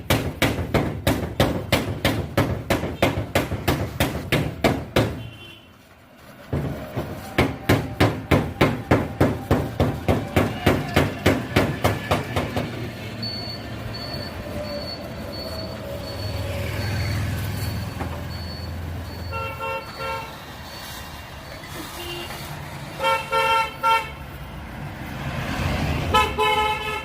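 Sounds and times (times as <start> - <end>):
fast sharp knocks: 0.0 - 5.3, 6.5 - 12.8.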